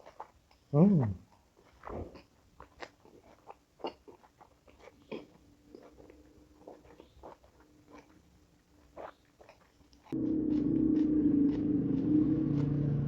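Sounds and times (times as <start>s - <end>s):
person chewing and crunching food: 0.0s - 13.0s.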